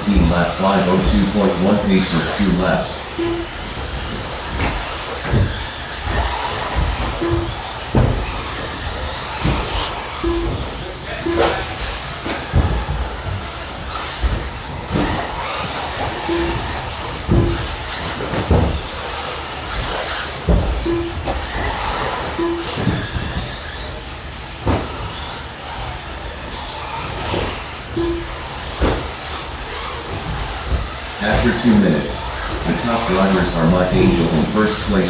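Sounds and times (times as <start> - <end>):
short beeps: 0.0 - 3.6, 7.2 - 7.6, 10.2 - 11.7, 16.3 - 17.7, 20.8 - 21.2, 22.4 - 22.9, 28.0 - 28.4, 31.2 - 35.0
thuds of car landings: 0.0 - 23.6
whine of electric rc cars: 0.0 - 35.0.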